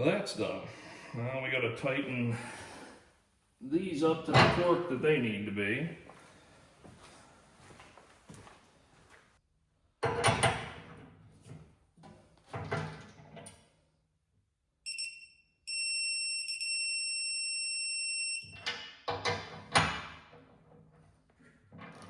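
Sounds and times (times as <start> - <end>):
torque wrench beeping: 14.9 - 18.6.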